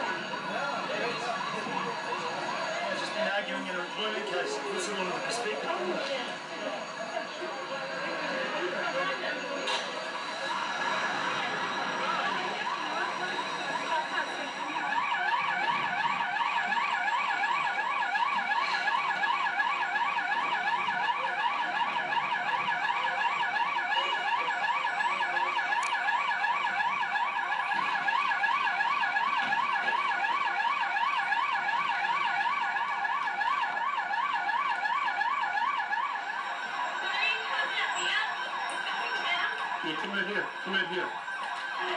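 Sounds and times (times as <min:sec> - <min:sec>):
electronic siren warbling: 0:00.0 - 0:41.9.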